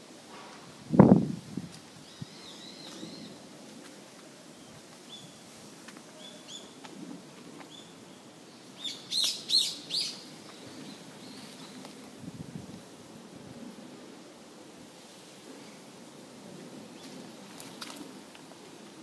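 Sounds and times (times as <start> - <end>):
songbird chirps: 2.0 - 3.4, 4.1 - 6.9, 7.6 - 12.0.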